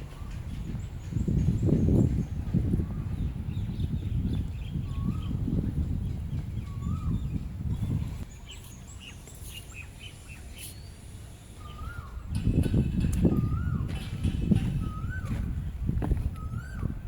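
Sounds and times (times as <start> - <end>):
birds chirping: 0.0 - 17.0
bird whistling: 6.6 - 7.4, 11.6 - 12.3, 13.3 - 13.9, 14.8 - 15.4, 16.4 - 16.9.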